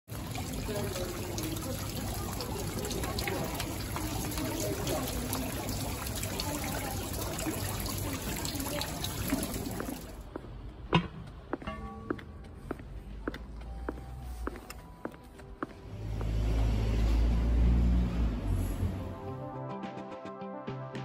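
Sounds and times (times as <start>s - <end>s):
water dripping off a ledge: 0.1s - 10.4s.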